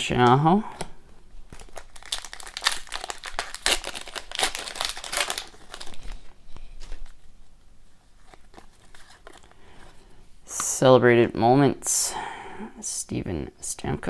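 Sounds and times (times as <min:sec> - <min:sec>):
wrapper crinkling: 0:00.8 - 0:10.0.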